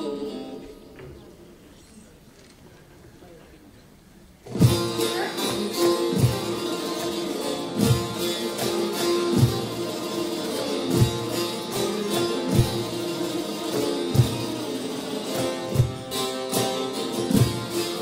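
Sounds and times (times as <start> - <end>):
plucked saz strings: 0.0 - 1.0, 4.4 - 18.0
low drum beat: 4.5 - 5.3, 9.3 - 9.9, 12.5 - 13.0.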